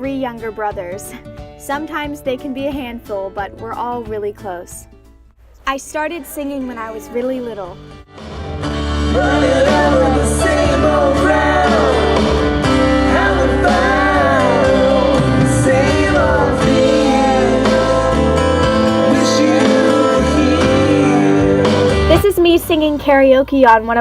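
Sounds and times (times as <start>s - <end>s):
instrumental accompaniment with bass: 7.8s - 24.0s
person singing: 9.0s - 22.2s.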